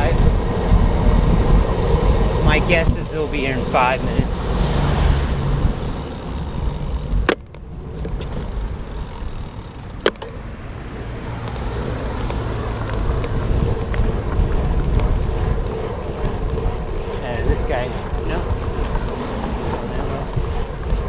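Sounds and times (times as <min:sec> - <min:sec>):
wind and road noise rumble: 0:00.0 - 0:21.0
sharp clicks: 0:11.4 - 0:17.2.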